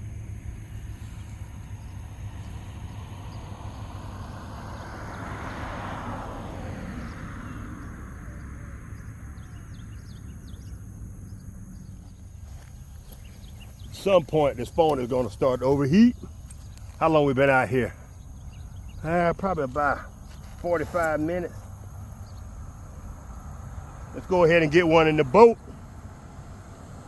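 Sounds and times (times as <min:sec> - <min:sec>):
vehicle passing: 0:00.0 - 0:27.0
faint bird chirps: 0:07.0 - 0:24.3.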